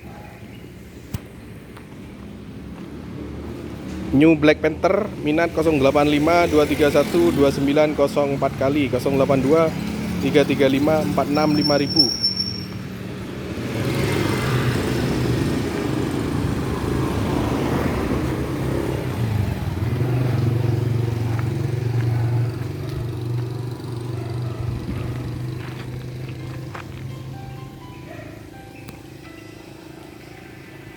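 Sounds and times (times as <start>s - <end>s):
small motorbike engine running: 19.4s - 27.0s.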